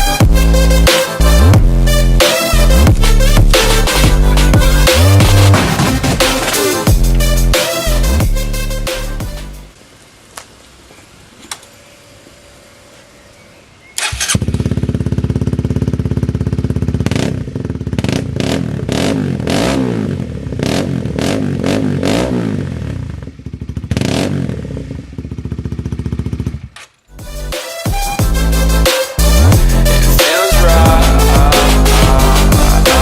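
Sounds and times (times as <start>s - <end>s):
motorcycle engine starting and revving: 0.0s - 7.5s, 11.4s - 27.3s.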